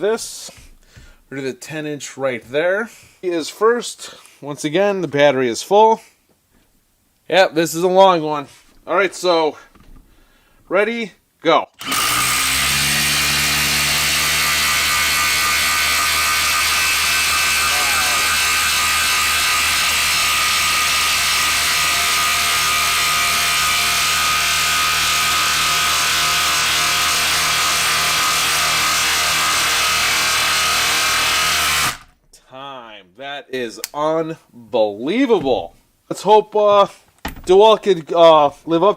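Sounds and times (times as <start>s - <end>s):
impact driver hammering: 11.8s - 32.1s.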